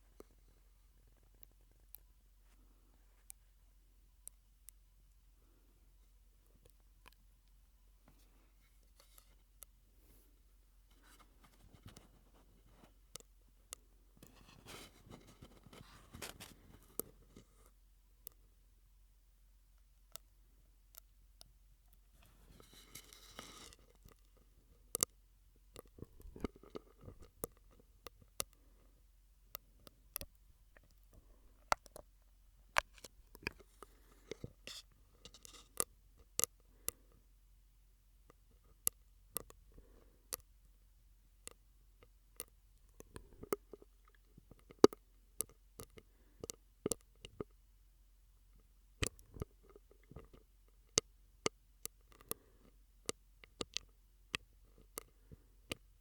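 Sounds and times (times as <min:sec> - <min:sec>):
wet mouth clicks and pops: 0:25.8 - 0:27.6
soft breathy smacking sounds: 0:51.9 - 0:52.8.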